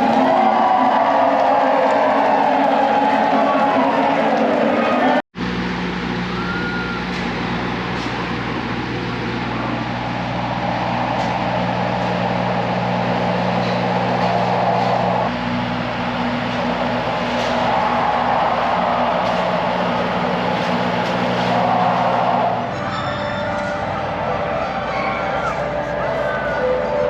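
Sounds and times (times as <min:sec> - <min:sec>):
engine humming: 0:00.0 - 0:27.0
outdoor background noise: 0:05.4 - 0:27.0.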